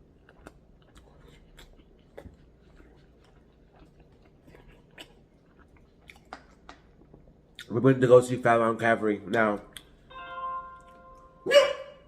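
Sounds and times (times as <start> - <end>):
chewing food: 0.0 - 7.7.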